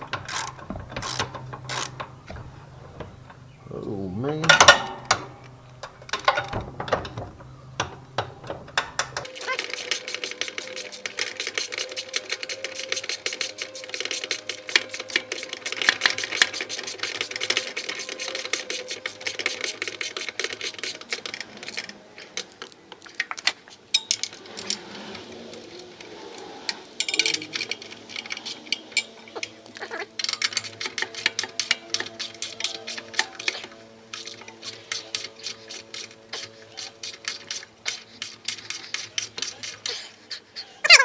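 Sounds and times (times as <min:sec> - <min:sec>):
ratchet wrench clicking: 0:00.0 - 0:02.4, 0:08.7 - 0:21.9, 0:30.2 - 0:40.2.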